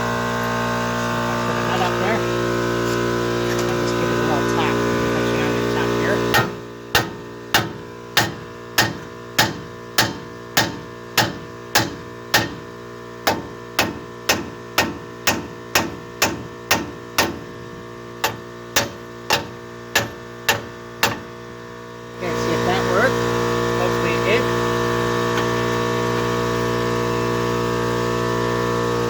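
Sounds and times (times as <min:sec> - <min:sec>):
steady mains hum: 0:00.0 - 0:29.0
hammer striking steel: 0:06.3 - 0:17.5, 0:18.2 - 0:21.3.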